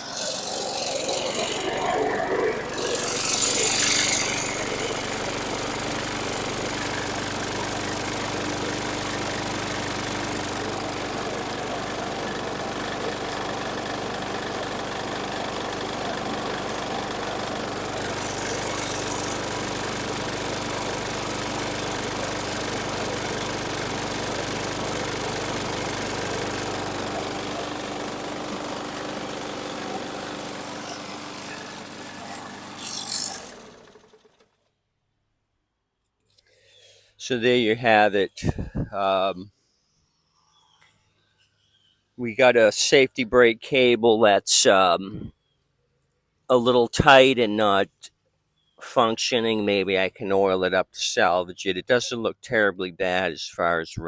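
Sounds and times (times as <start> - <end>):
push mower engine running: 0.0 - 34.6.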